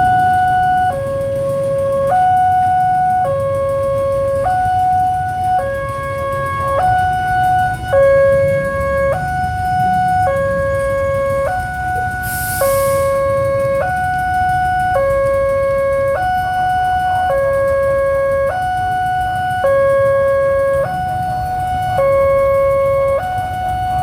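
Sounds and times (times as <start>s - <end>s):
level crossing two-tone alarm: 0.0s - 24.0s
road traffic rumble: 0.0s - 24.0s
short hiss: 12.2s - 13.1s.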